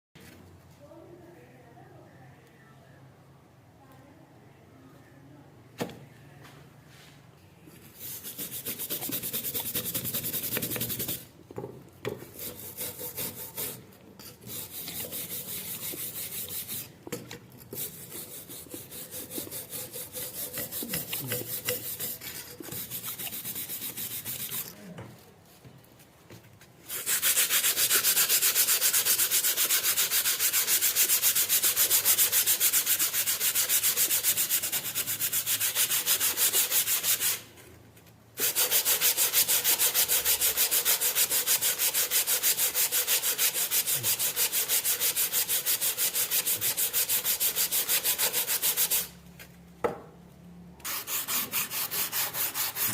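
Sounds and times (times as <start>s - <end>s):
sandpaper rubbing on metal: 7.8s - 11.3s, 12.3s - 17.0s, 17.7s - 24.8s, 26.9s - 37.5s, 38.4s - 49.2s, 50.8s - 52.9s.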